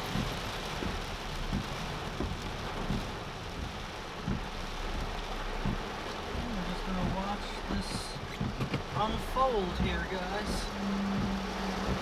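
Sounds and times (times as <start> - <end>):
heavy rain pouring: 0.0 - 12.0
low repeating thump: 0.0 - 12.0.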